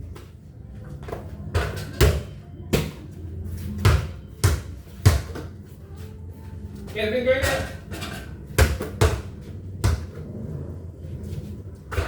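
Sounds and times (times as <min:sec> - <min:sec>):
basketball bouncing: 0:03.8 - 0:05.4, 0:08.5 - 0:10.2.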